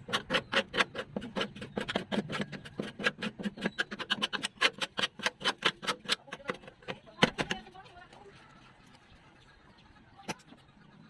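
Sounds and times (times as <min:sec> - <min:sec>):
rapid scraping strokes: 0:00.0 - 0:08.9.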